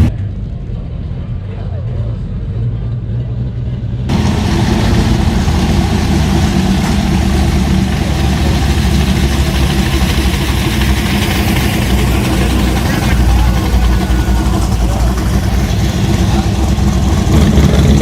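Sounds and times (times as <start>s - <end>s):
car engine idling: 4.1s - 18.0s.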